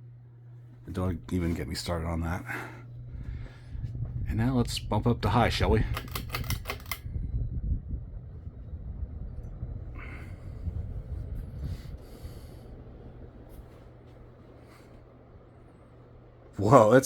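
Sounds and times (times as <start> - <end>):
ceiling fan motor humming: 0.0 - 17.0
pull chain clicks: 5.8 - 7.0
rush of moving air: 7.0 - 15.3.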